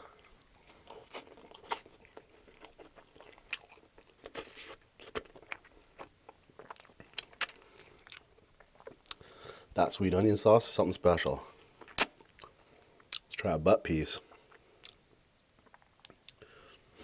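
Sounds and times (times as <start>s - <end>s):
chewing with wet crunches: 0.0s - 9.4s, 14.3s - 16.7s.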